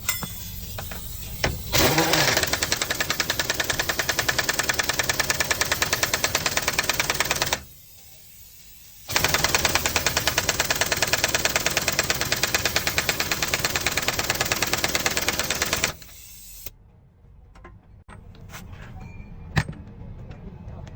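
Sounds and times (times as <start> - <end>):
machine clattering rhythmically: 1.7 - 7.6, 9.1 - 16.0.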